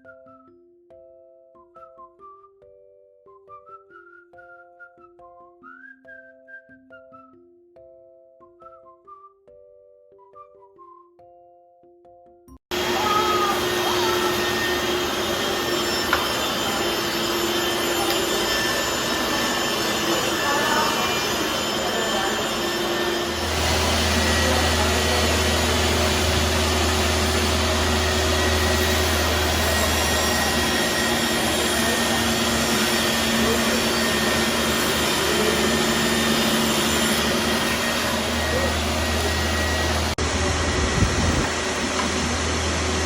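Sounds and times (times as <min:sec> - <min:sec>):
power tool motor whooshing: 0:12.7 - 0:43.0.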